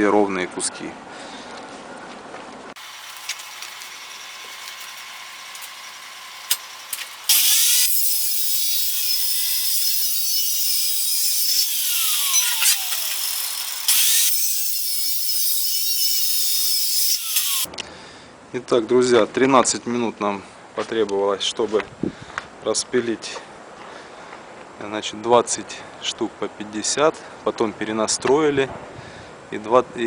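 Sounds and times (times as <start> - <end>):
power saw cutting steel tube: 2.8 - 17.7.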